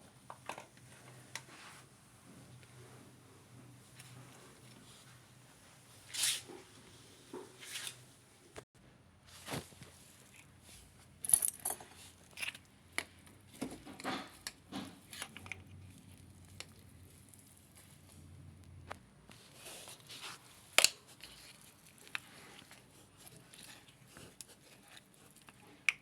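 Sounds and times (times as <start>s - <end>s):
handling clicks and rustles: 9.4s - 26.0s.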